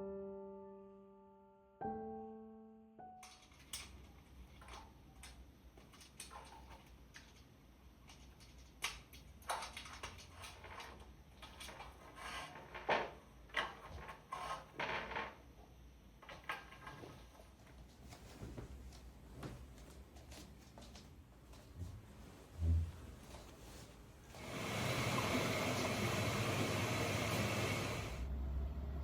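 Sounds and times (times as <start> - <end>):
steady low hum: 17.6 - 24.4.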